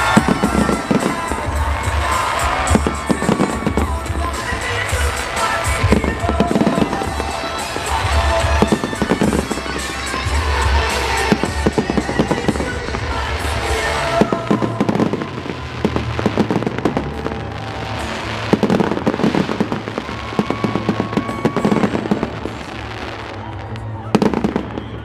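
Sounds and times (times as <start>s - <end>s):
fireworks crackling and banging: 0.0s - 25.0s.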